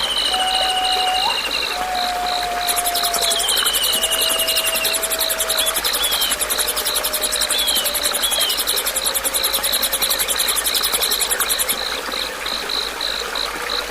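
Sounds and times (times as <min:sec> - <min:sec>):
insect steady pulsing chirp: 0:00.0 - 0:13.9
insect high pulsed trill: 0:02.6 - 0:11.9.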